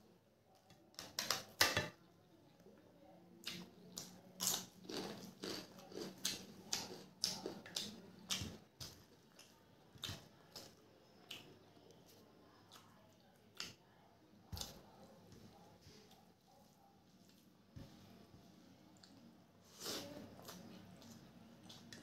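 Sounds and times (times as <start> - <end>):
crunchy wafer chewing: 3.4 - 11.6.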